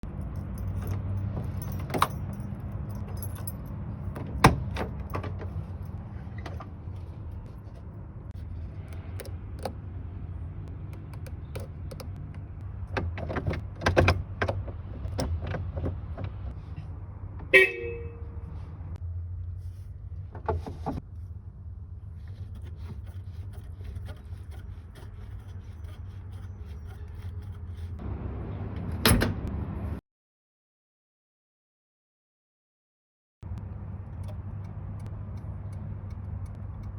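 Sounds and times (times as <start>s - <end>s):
car horn toot: 17.5s - 18.4s.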